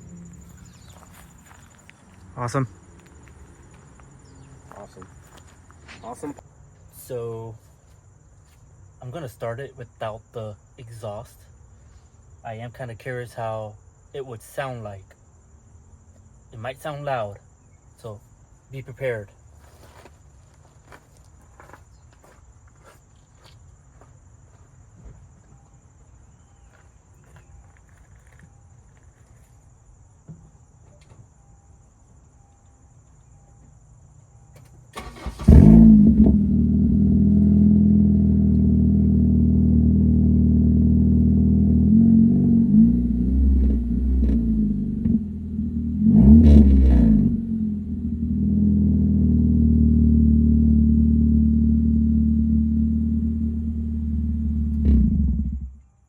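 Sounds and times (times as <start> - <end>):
car engine starting: 34.9 - 55.8
loud engine through open exhaust: 35.5 - 55.8.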